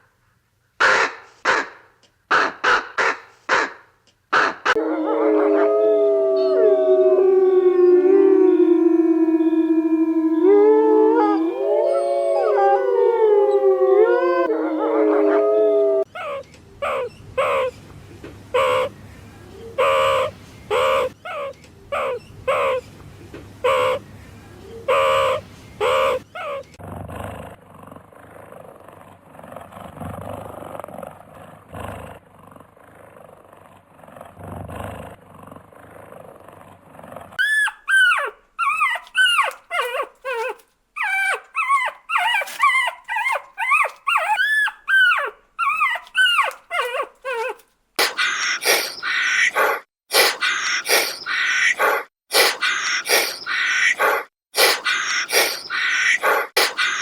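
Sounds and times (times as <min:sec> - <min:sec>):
canids howling together: 0:04.7 - 0:16.1, 0:48.0 - 0:57.0
high falling yelps: 0:37.4 - 0:57.0
short repeated calls: 0:48.0 - 0:57.0.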